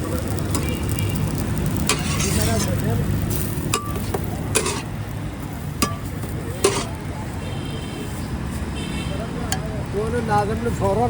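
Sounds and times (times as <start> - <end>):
metal spatula clinking on pan: 1.9 - 2.7, 3.8 - 4.9, 5.8 - 7.0.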